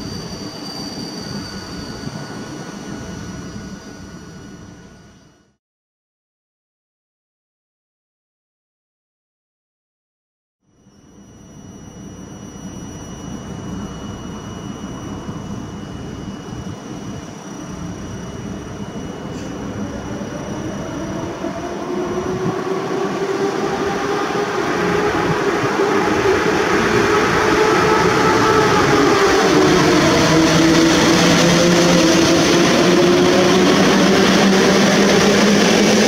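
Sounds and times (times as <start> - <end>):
train rumble: 0.0 - 5.3, 13.2 - 36.0
electric locomotive whine: 0.0 - 5.6, 10.7 - 36.0.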